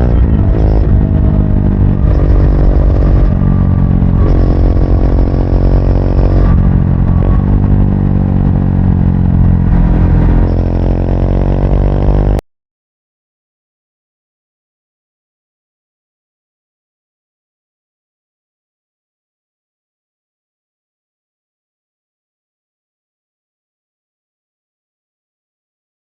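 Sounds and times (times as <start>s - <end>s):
motorcycle engine revving: 0.0s - 12.4s.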